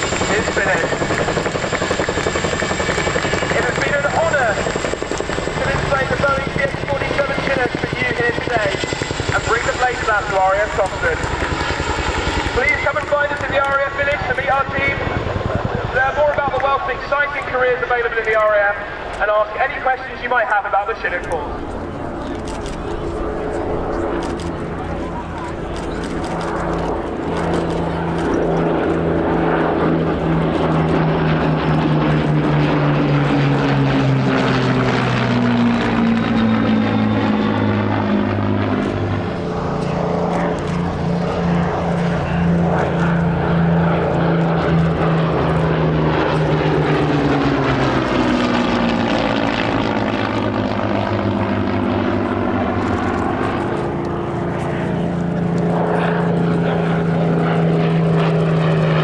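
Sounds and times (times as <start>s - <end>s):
propeller aircraft passing overhead: 0.0s - 59.0s.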